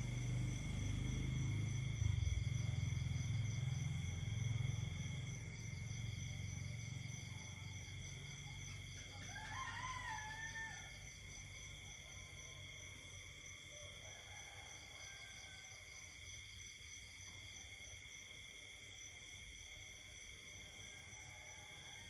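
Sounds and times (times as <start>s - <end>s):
insects chirping at night: 0.0s - 22.0s
rooster crowing: 9.0s - 11.3s, 13.7s - 15.9s, 21.0s - 22.0s.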